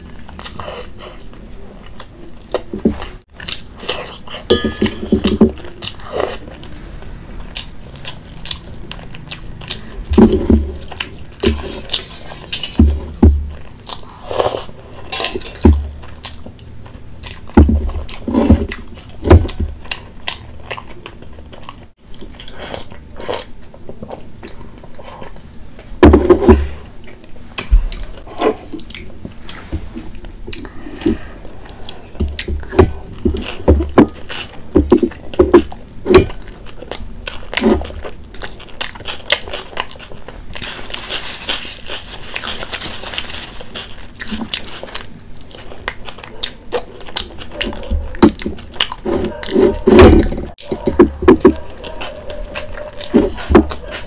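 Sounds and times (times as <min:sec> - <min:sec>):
wet chewing and biting: 0:07.4 - 0:14.8, 0:30.2 - 0:54.0.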